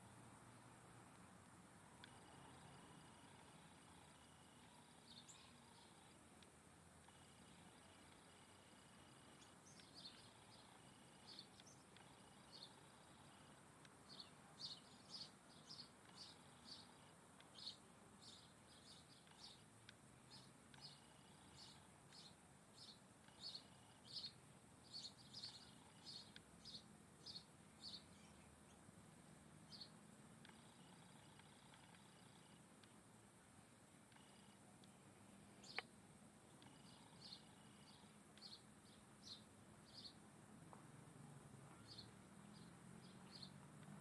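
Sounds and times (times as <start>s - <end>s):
bird chirping: 2.0s - 6.2s, 7.1s - 28.8s, 29.7s - 32.6s, 35.6s - 35.9s, 36.5s - 40.2s, 41.7s - 43.6s.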